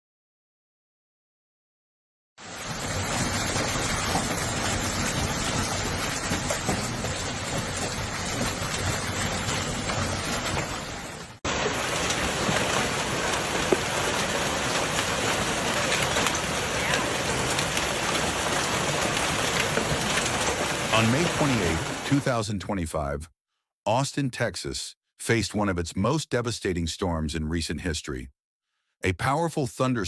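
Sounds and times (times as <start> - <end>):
heavy rain downpour: 2.4 - 22.4
sharp ticks of raindrops: 2.5 - 23.1.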